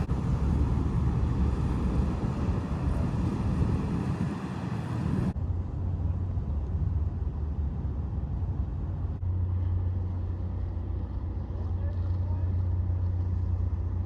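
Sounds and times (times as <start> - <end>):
wind buffeting microphone: 0.0 - 9.2
boat engine rumble: 0.0 - 14.0
low hum: 0.0 - 14.0.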